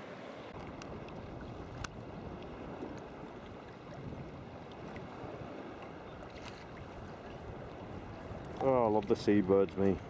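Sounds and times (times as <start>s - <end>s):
water sloshing against kayak: 0.0s - 10.0s
wind buffeting microphone: 0.5s - 10.0s.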